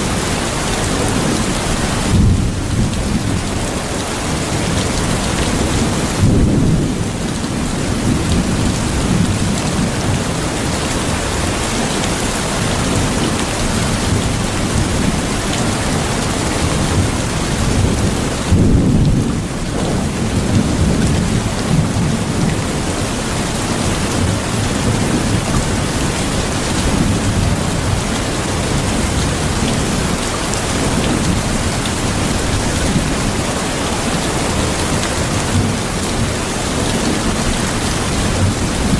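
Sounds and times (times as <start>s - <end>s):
heavy rain: 0.0s - 38.9s
rolling thunder: 2.0s - 3.5s, 5.0s - 7.2s, 16.6s - 22.9s.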